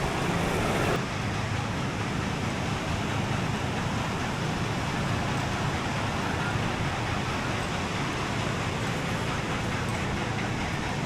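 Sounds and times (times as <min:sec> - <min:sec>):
steady rushing outdoor noise: 0:00.0 - 0:11.0.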